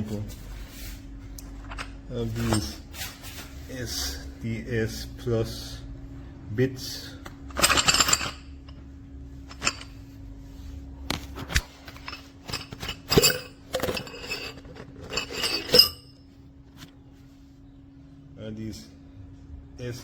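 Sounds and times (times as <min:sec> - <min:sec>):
metal drill bits clinking: 0:01.6 - 0:02.8, 0:07.5 - 0:08.5, 0:09.5 - 0:10.0, 0:11.9 - 0:16.2.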